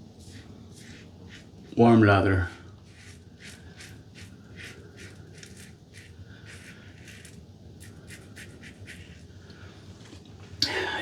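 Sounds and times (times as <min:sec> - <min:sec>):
razor scraping stubble: 0:00.2 - 0:02.1, 0:02.7 - 0:09.3.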